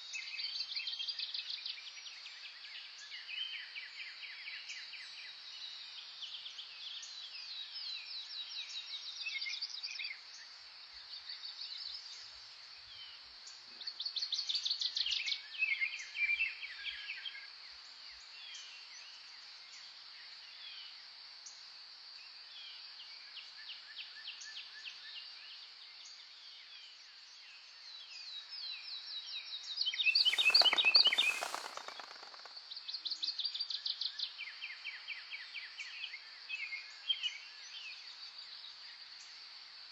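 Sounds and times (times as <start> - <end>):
songbirds singing: 30.1 - 32.5
background hiss: 30.1 - 32.6.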